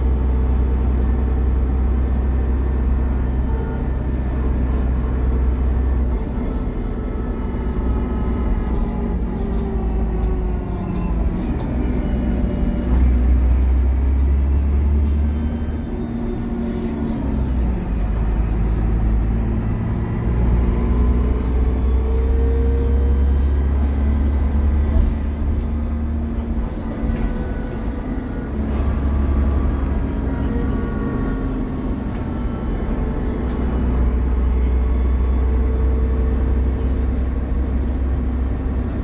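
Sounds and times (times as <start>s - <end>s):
bus engine accelerating: 0.0s - 39.0s.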